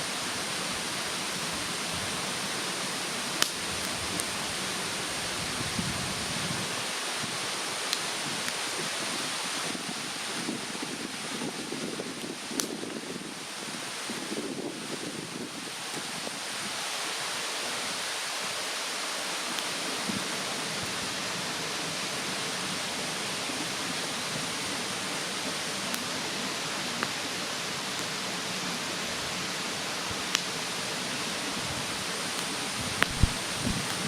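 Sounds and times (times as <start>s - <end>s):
mountain stream rushing: 0.0s - 34.0s
campfire popping and crackling: 1.5s - 5.2s, 9.6s - 16.2s, 23.6s - 34.0s.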